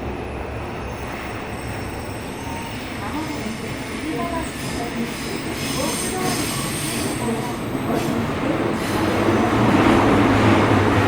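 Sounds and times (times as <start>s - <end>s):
wheels rumbling on rail: 0.0s - 11.0s
high wheel squeal: 3.6s - 7.6s.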